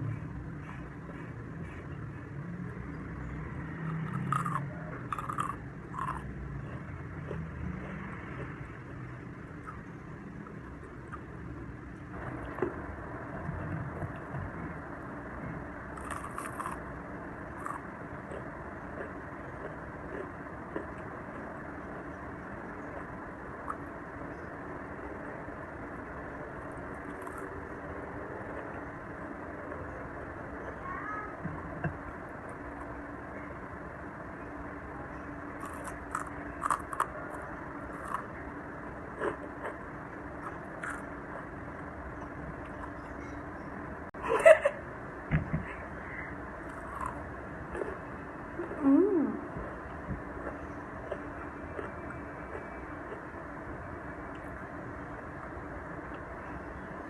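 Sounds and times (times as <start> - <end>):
faint hum: 0.0 - 57.0
steady low rumble: 0.0 - 57.0
chewing crispy fried food: 3.6 - 14.4, 15.9 - 24.1, 26.0 - 29.0, 35.5 - 43.1, 46.6 - 56.3.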